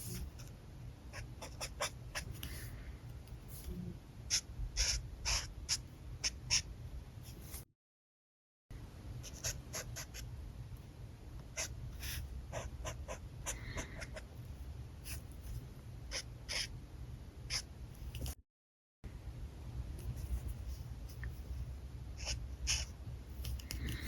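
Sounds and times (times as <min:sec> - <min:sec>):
low steady hum: 0:00.0 - 0:07.6, 0:08.7 - 0:18.4, 0:19.1 - 0:24.0.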